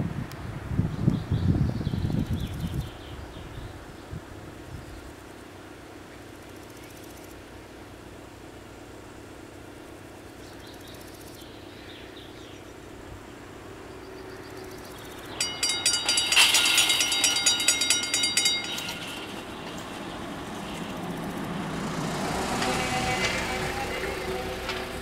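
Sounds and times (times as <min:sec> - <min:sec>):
railroad crossing bells ringing: 0:14.0 - 0:25.0.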